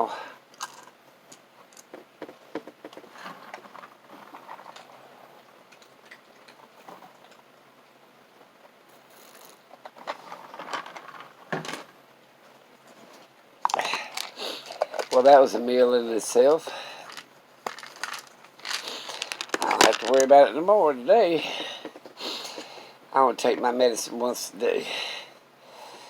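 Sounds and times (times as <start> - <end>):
small objects clicking and rustling: 0.5 - 2.0, 9.2 - 11.9, 13.6 - 15.4, 17.0 - 20.4.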